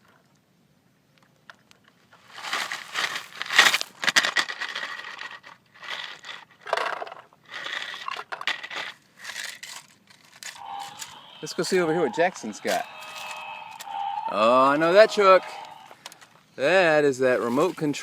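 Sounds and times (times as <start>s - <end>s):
gravel crunching and scraping: 2.1s - 6.5s, 8.6s - 18.0s.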